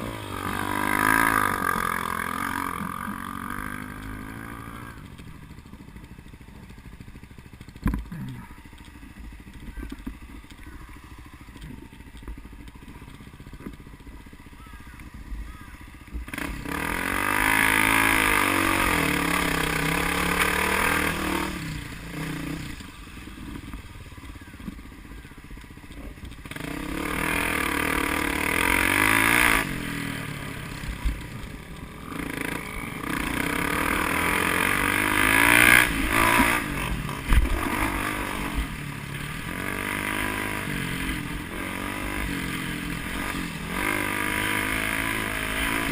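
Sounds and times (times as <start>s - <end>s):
vehicle engines revving hard: 0.0s - 5.6s, 15.5s - 23.8s, 25.8s - 45.9s.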